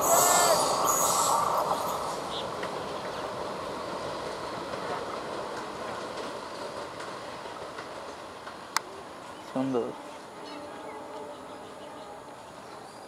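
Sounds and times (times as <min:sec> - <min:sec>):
train coaches rumbling on rails: 0:00.0 - 0:13.0.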